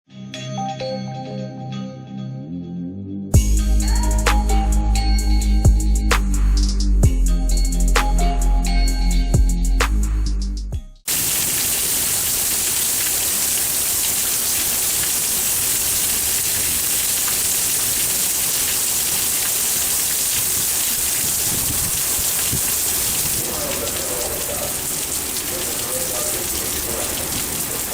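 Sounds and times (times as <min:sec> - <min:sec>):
heavy rain pouring: 0:11.1 - 0:27.9.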